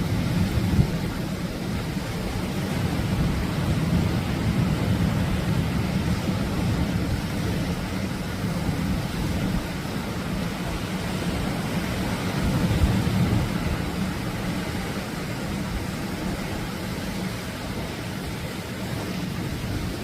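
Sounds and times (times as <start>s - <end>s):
waves breaking on a beach: 0.0s - 20.0s.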